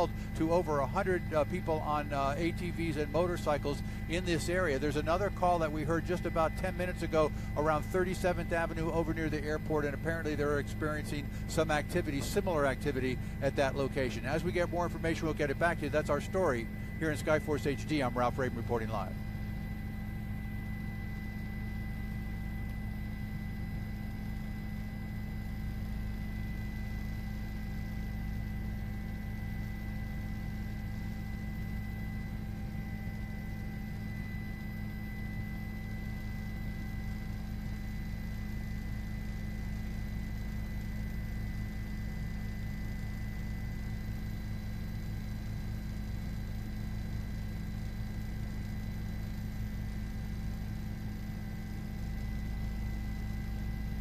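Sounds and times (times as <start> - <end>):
helicopter cabin drone: 0.0 - 54.0.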